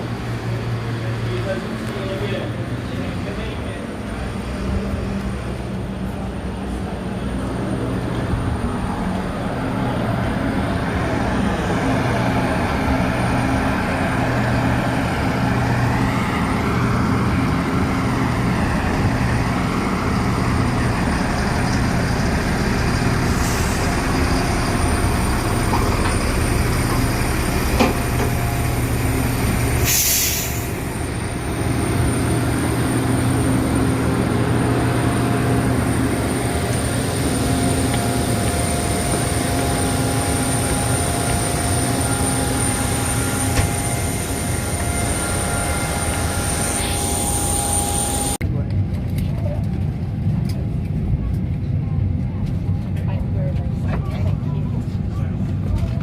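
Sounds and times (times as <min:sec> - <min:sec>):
short loud air hiss: 0:29.8 - 0:30.7.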